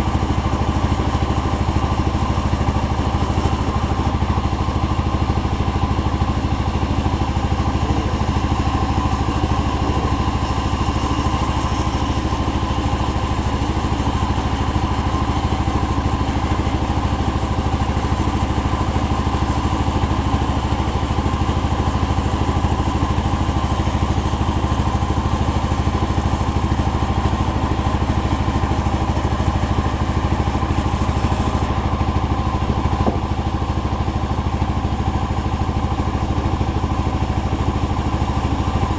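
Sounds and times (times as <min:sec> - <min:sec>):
chainsaw sawing wood: 0:07.5 - 0:12.7.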